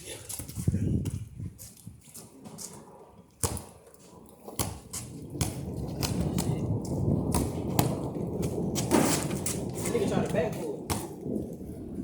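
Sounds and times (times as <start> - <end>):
wind noise on microphone: 0.0 - 12.0
basketball bouncing: 3.4 - 3.8, 4.5 - 6.6, 7.3 - 9.6, 10.9 - 11.2.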